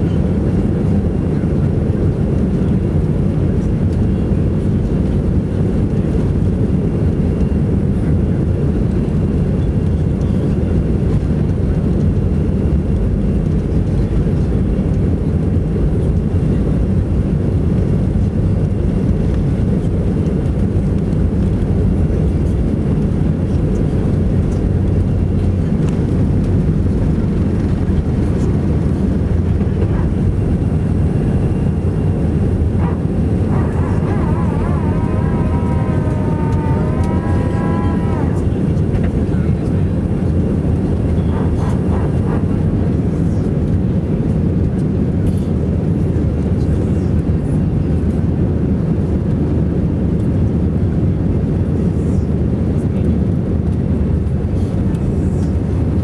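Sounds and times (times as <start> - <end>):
jet engine drone: 0.0 - 56.0
air rushing along fuselage: 16.9 - 45.2.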